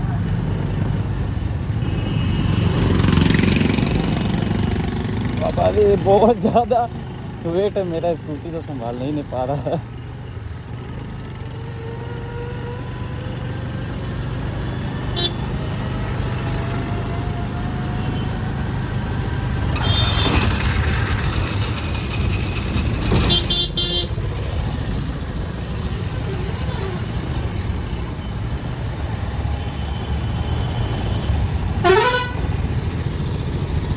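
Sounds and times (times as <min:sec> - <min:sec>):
road and traffic noise: 0:00.0 - 0:33.9
scooter engine humming: 0:00.0 - 0:33.9
vehicle horn toot: 0:15.1 - 0:15.5, 0:23.2 - 0:24.2, 0:31.8 - 0:32.5.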